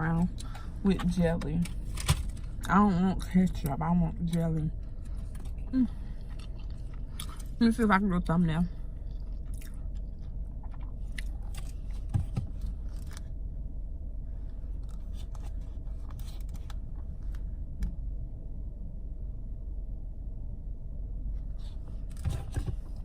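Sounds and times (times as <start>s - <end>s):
low hum inside a car: 0.0s - 23.0s
small clicks and scrapes: 14.8s - 17.4s.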